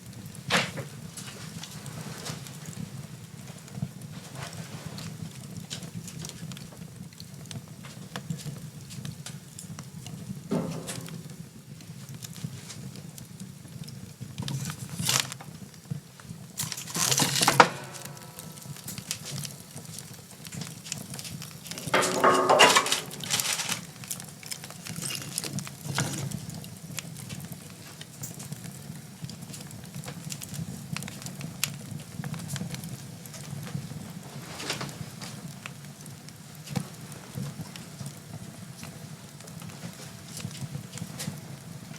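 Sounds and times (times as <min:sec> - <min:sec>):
wood fire crackling: 0:00.0 - 0:41.9
wood clattering knocks and scrapes: 0:16.6 - 0:19.3, 0:21.7 - 0:24.0.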